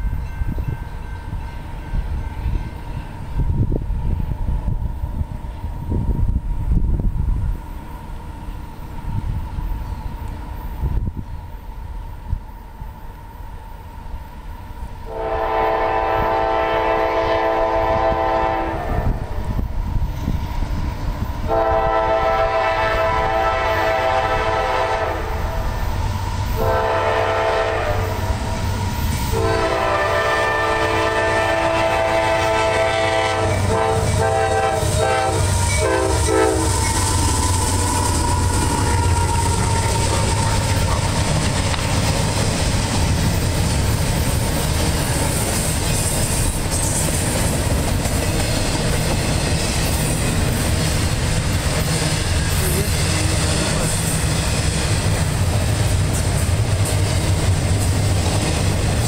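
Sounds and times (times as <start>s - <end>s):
locomotive air horn blasts: 15.1s - 19.3s, 21.5s - 25.6s, 26.6s - 28.4s, 29.3s - 37.0s
freight cars rolling on rails: 19.4s - 59.0s.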